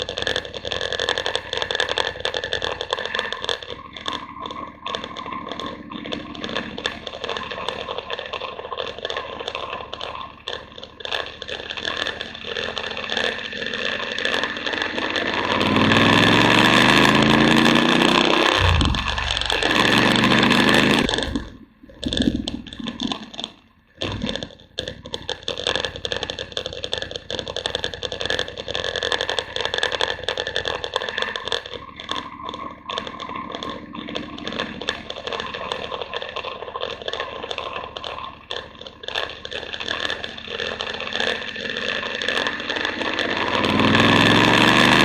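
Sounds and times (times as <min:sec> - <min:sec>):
motorcycle engine: 0:00.0 - 0:21.5, 0:33.7 - 0:45.0.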